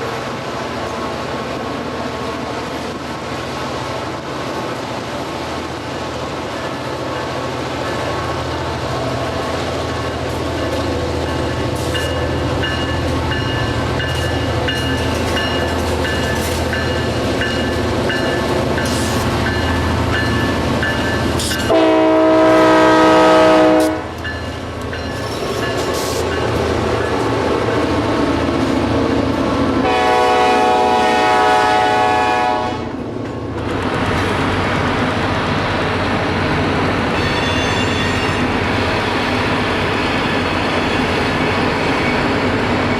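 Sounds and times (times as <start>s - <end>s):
diesel locomotive running: 0.0s - 42.9s
train horn blasts: 21.6s - 24.2s, 29.8s - 32.9s.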